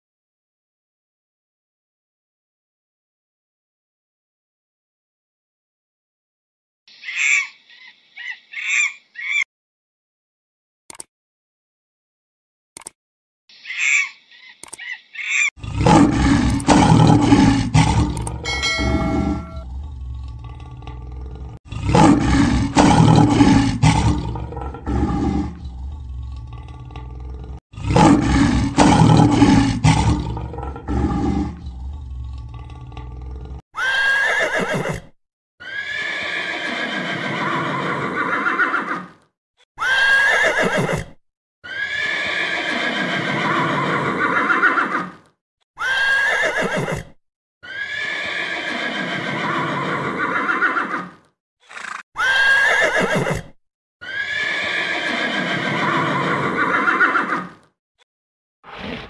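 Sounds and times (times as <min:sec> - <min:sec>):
lion roaring and grunting: 0:15.6 - 0:33.6
horses neighing: 0:33.8 - 0:35.0, 0:35.6 - 0:39.1, 0:39.8 - 0:41.1, 0:41.7 - 0:45.2, 0:45.8 - 0:47.0, 0:47.6 - 0:53.4, 0:54.0 - 0:57.6.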